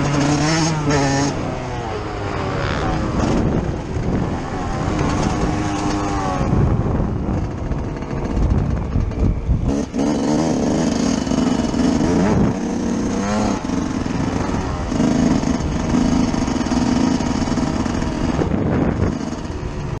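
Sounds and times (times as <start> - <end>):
motocross engine revving: 0.0 - 20.0.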